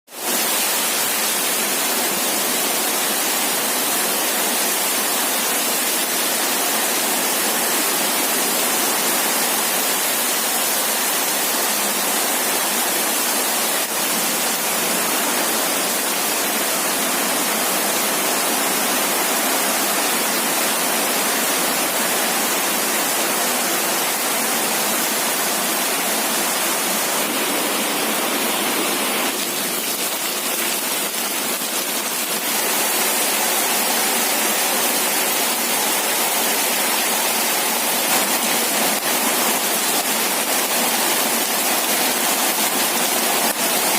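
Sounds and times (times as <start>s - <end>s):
heavy rain pouring: 0.1s - 43.9s.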